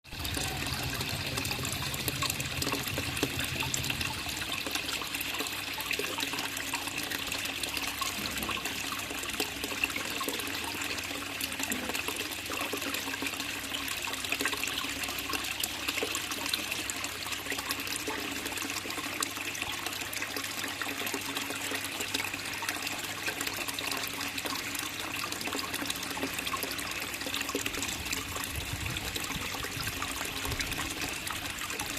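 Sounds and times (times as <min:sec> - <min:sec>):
pond water trickling and splashing: 0:00.0 - 0:31.9.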